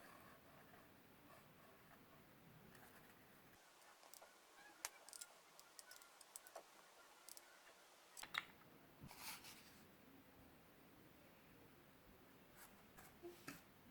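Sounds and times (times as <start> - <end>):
small objects clicking and tapping: 3.7 - 7.5, 8.2 - 8.6.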